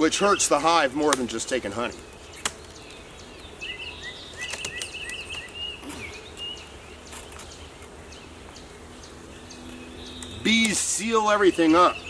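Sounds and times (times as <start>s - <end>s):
bees humming: 0.0s - 12.0s
songbird chirping: 0.0s - 12.0s.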